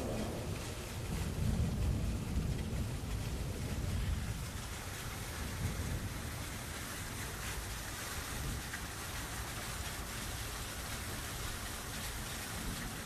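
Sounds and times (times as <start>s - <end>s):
low thunder rumble: 0.0s - 8.7s
heavy rain hissing: 0.0s - 13.0s.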